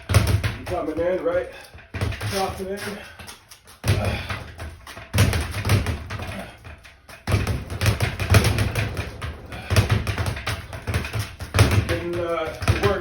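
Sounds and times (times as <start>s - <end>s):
punches thudding on punching bag: 0.0s - 3.1s, 3.8s - 13.0s.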